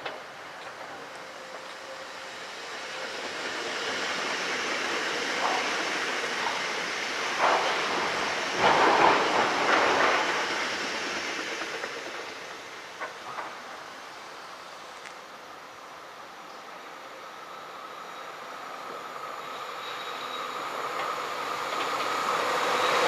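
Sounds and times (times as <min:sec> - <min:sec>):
train cars clattering: 0:00.0 - 0:02.0, 0:02.7 - 0:14.6, 0:18.9 - 0:23.0
train wheels rushing on rails: 0:00.0 - 0:23.0.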